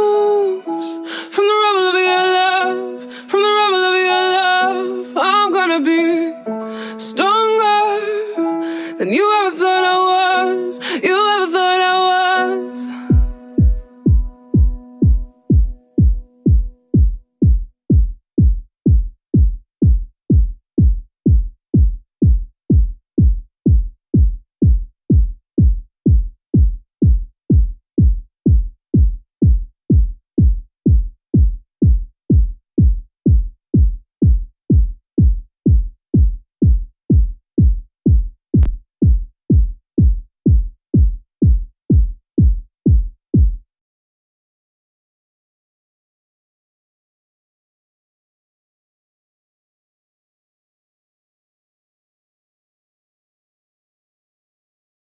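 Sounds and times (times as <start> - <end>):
deep drum machine kick beat: 13.1 - 43.6.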